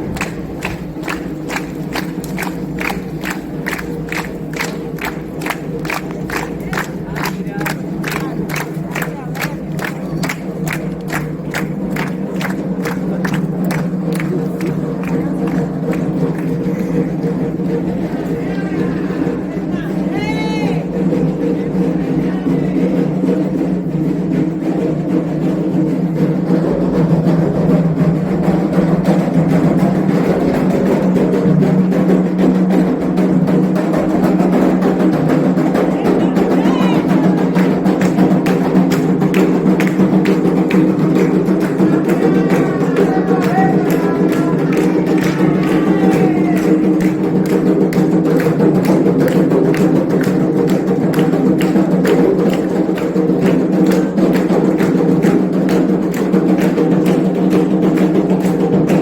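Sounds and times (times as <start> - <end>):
hand drums: 0.0 - 59.0
voices singing: 35.8 - 38.0, 41.4 - 47.3.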